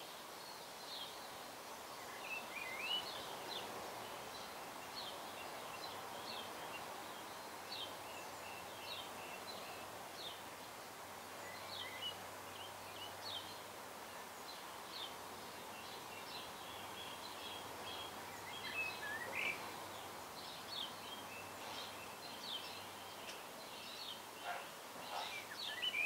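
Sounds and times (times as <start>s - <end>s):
outdoor background hiss: 0.0s - 26.0s
birds chirping: 2.0s - 26.0s.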